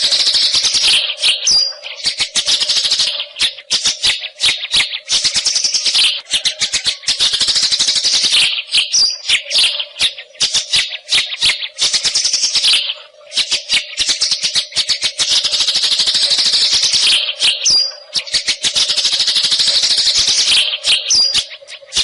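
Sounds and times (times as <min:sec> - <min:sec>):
bird singing rattling chatter: 0:00.0 - 0:22.0.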